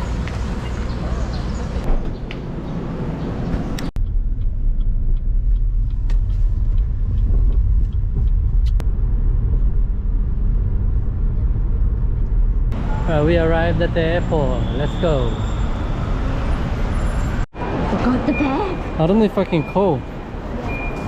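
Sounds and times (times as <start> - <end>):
road noise inside car: 0.0 - 14.4
car engine rumble: 0.0 - 17.4.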